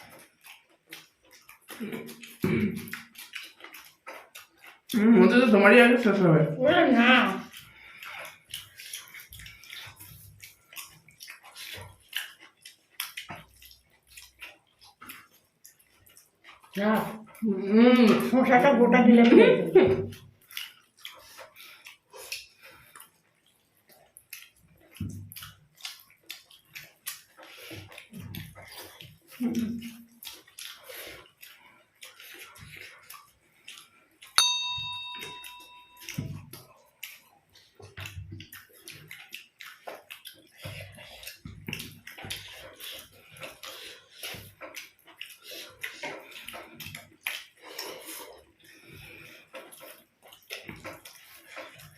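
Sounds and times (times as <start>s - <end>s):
food being chewed wetly: 0.0s - 19.0s, 19.6s - 51.9s
metal tableware ding: 34.4s - 36.2s.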